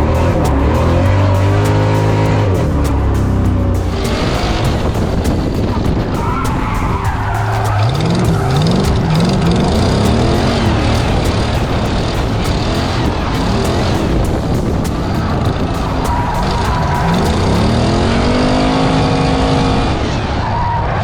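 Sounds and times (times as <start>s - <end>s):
car engine revving hard: 0.0s - 20.4s
tyres skidding on tarmac: 0.0s - 21.0s.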